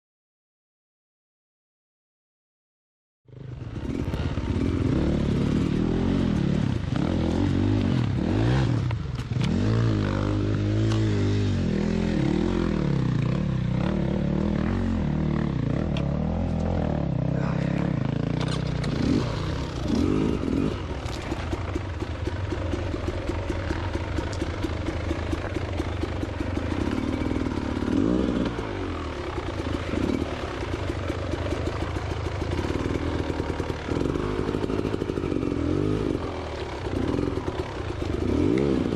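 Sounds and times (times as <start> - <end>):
dirt bike engine revving: 3.3 - 38.9.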